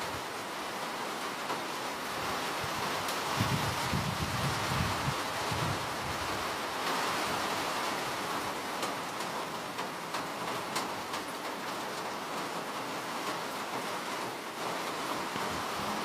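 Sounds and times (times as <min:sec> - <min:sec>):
steady rain falling: 0:00.0 - 0:16.0
raindrop taps: 0:08.8 - 0:12.5.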